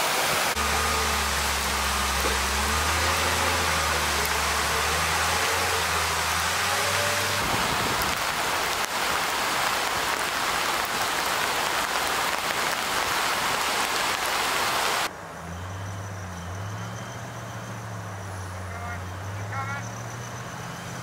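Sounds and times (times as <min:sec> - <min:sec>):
heavy rain hiss: 0:00.0 - 0:15.1
pickup truck engine humming: 0:00.3 - 0:13.0.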